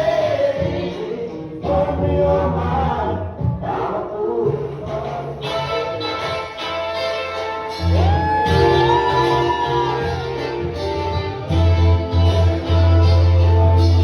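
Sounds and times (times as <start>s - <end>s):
plucked guitar: 5.4s - 14.0s
heavy bass line: 7.7s - 14.0s.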